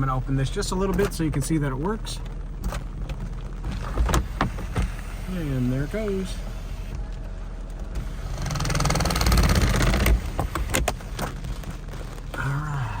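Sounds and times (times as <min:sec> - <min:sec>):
low engine idle: 0:00.0 - 0:13.0
electric roof motor whirring: 0:03.8 - 0:11.3.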